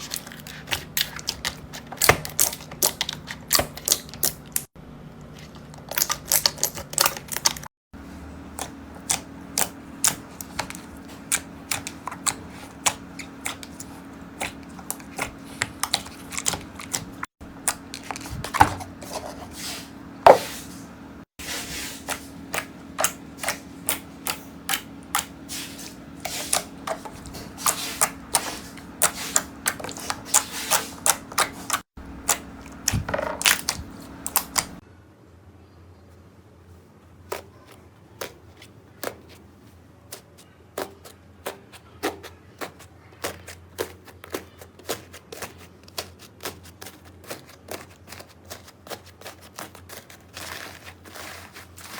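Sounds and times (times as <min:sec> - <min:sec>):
slime clicking and crackling: 0:26.2 - 0:34.8.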